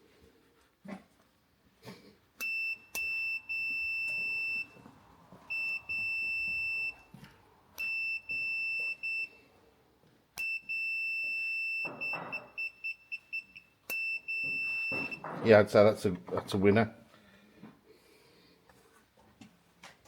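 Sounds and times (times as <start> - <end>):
continuity tester beeping: 2.4 - 4.9, 5.5 - 7.2, 7.8 - 9.4, 10.4 - 15.4.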